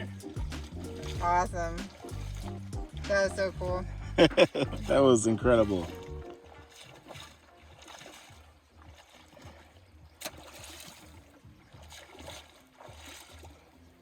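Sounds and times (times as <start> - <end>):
low rumble: 0.0 - 6.2
river flowing: 0.0 - 14.0.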